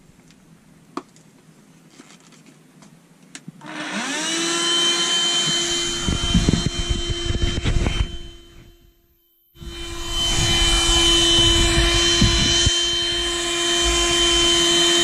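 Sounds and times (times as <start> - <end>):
vacuum cleaner running: 3.6 - 8.8, 9.6 - 15.0.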